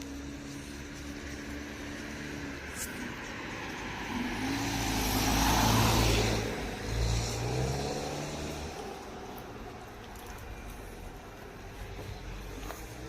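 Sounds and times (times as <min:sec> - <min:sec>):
car driving past: 0:01.5 - 0:09.4.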